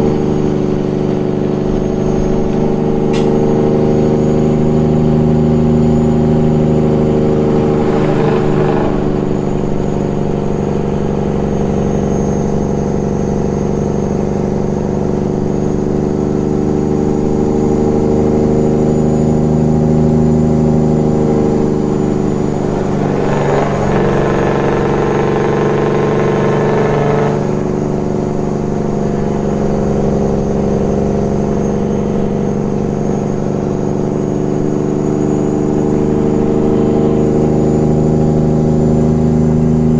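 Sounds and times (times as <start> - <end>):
diesel engine running: 0.0 - 39.9
brief rushing noise: 6.2 - 11.9.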